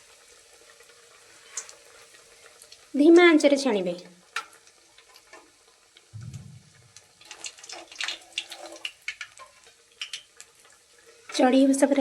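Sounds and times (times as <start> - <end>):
snacks deep-frying in oil: 0.0 - 12.0
dull low knock: 6.2 - 6.9.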